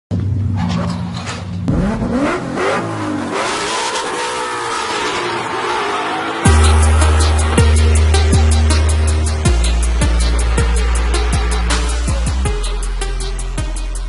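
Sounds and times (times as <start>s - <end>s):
car engine revving: 0.3s - 14.0s
rushing noise: 1.8s - 13.6s.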